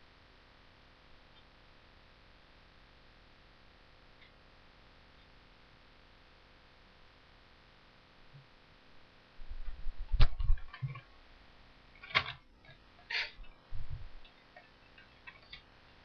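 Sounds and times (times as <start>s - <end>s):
faint room hiss: 0.0s - 16.0s
low thumps: 9.4s - 11.0s, 13.7s - 14.2s.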